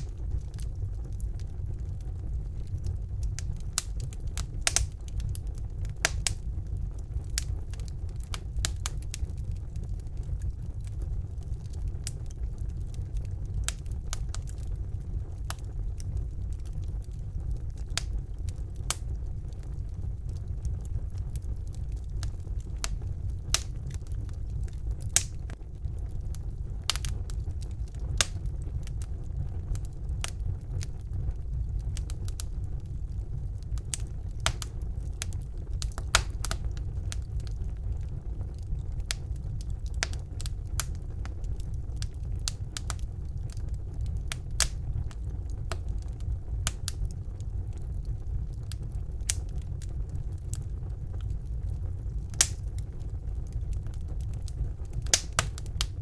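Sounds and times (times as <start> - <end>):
fire crackling and popping: 0.0 - 56.0
fire rumbling: 0.0 - 56.0.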